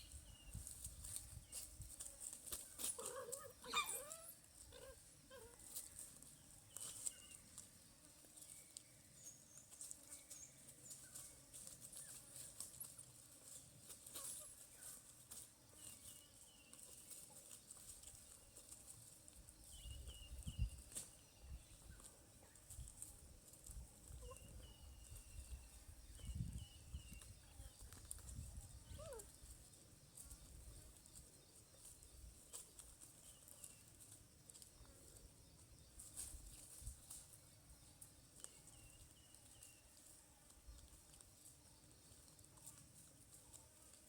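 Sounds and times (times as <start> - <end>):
faint wavering animal cries: 3.0 - 5.6, 28.8 - 29.4.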